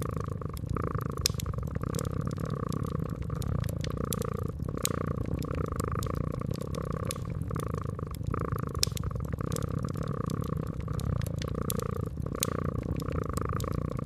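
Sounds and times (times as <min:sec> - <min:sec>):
cat purring: 0:00.0 - 0:14.0
wood fire crackling: 0:00.0 - 0:14.0.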